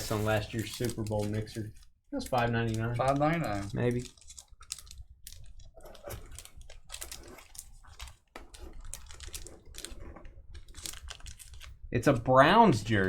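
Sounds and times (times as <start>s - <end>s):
cardboard box being opened: 0.0s - 1.0s.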